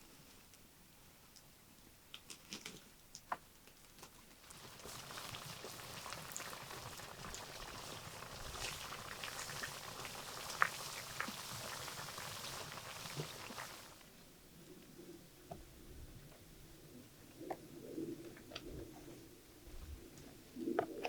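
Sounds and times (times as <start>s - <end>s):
oil popping and crackling: 4.4s - 14.0s
oil sizzling: 4.4s - 14.0s.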